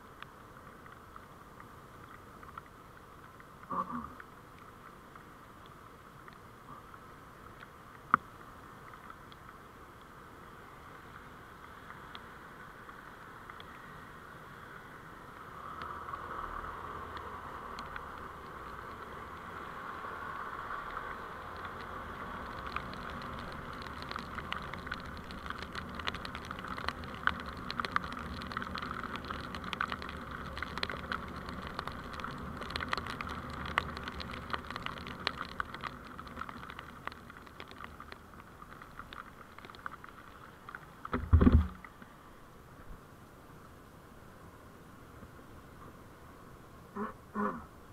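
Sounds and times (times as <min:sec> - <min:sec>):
small clicks and ticks: 0:00.0 - 0:10.2, 0:10.8 - 0:14.0, 0:15.2 - 0:42.1
vehicle road noise: 0:06.4 - 0:42.3
heavy deep thump: 0:41.1 - 0:41.8.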